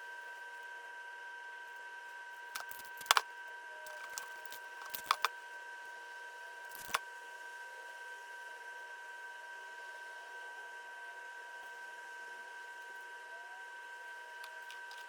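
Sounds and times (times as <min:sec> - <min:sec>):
high-pitched electrical hum: 0:02.6 - 0:03.2, 0:03.8 - 0:05.3, 0:06.6 - 0:07.0
sharp clicks and knocks: 0:02.6 - 0:03.2, 0:03.9 - 0:05.3, 0:06.7 - 0:07.0.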